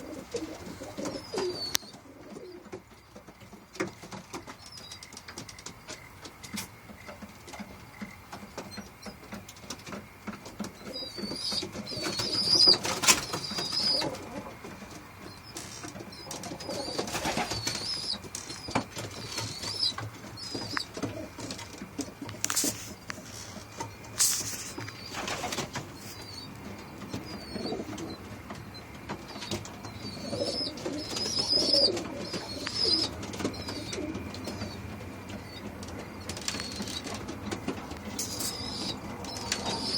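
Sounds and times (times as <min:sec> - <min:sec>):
pigeons cooing: 0:00.0 - 0:04.3, 0:10.3 - 0:39.9
high chirping: 0:10.8 - 0:14.2, 0:15.2 - 0:21.6, 0:22.6 - 0:37.2, 0:38.0 - 0:39.9.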